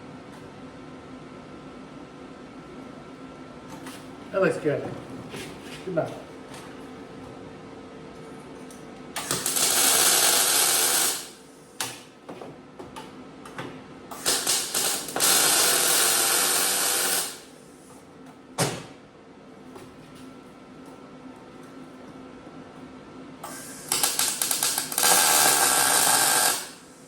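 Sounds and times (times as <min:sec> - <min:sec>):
welding on sheet steel: 0:09.2 - 0:11.4, 0:14.2 - 0:17.5, 0:23.5 - 0:26.9.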